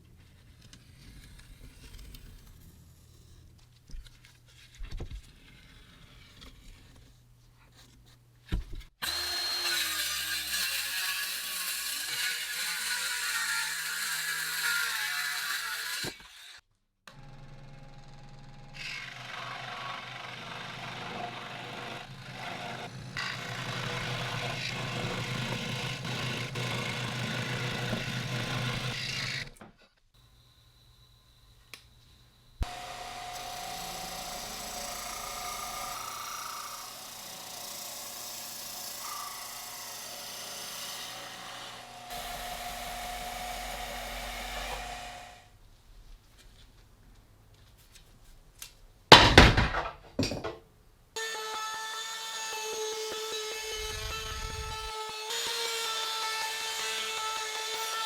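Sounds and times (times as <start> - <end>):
power tool cutting wood: 9.0 - 17.3, 18.7 - 29.6, 32.6 - 45.5, 51.2 - 58.0.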